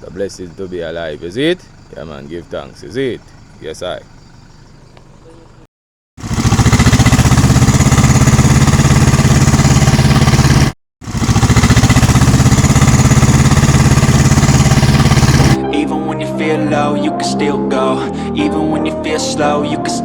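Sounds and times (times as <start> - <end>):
pneumatic jackhammer hammering: 6.2 - 15.6.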